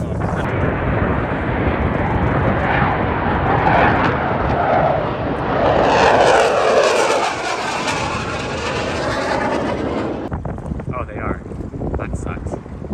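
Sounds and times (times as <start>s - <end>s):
airplane flying past: 0.0s - 10.3s.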